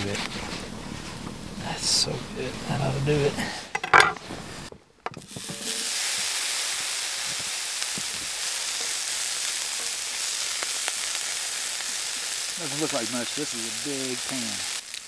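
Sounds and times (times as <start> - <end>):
meat sizzling in a frying pan: 5.2 - 15.0.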